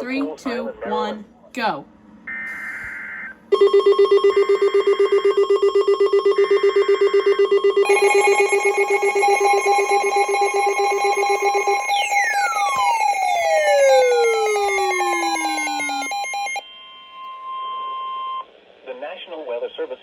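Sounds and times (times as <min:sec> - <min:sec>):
pulsing two-pitch alarm tone: 0:02.3 - 0:18.4
steady alarm tone: 0:02.3 - 0:18.4
higher tone bursts: 0:07.8 - 0:16.6
falling sweeping tones: 0:07.9 - 0:16.6.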